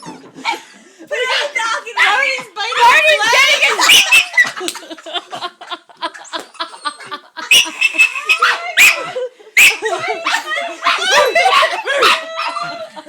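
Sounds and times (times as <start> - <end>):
dog sharp calls: 3.6 - 4.6, 7.5 - 9.0.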